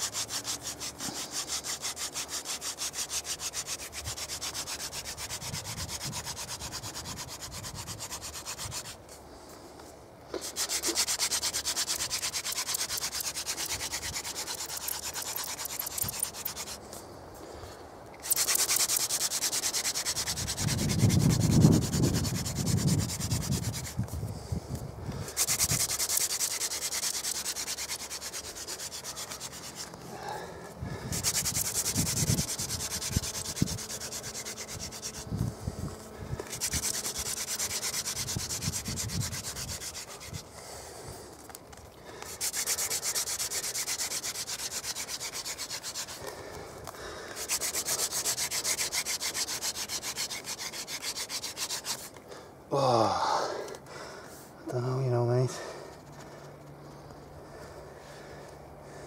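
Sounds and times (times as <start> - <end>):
wooden spindle grinding into board: 0.0 - 9.0, 10.3 - 16.8, 18.2 - 24.1, 25.2 - 30.0, 30.9 - 40.4, 42.3 - 46.4, 47.3 - 52.2.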